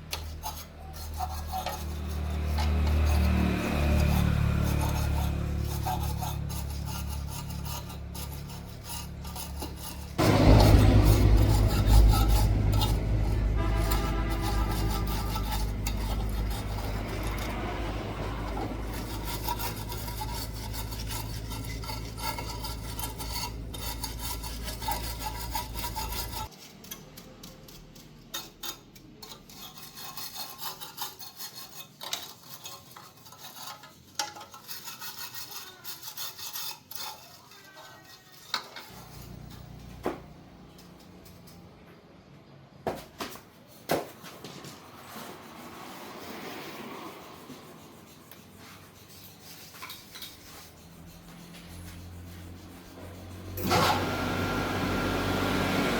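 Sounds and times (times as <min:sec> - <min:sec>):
loud steady low hum: 0:09.3 - 0:26.5
hands rubbing and scraping: 0:43.4 - 0:53.6.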